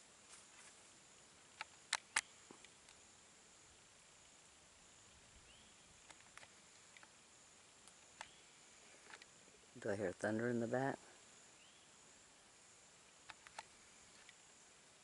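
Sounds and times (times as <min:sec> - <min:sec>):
faint ticks: 0:01.5 - 0:03.1, 0:05.5 - 0:09.4, 0:13.0 - 0:14.6
sharp clicks: 0:01.6 - 0:03.0, 0:06.0 - 0:07.2, 0:07.8 - 0:08.4, 0:13.2 - 0:14.4.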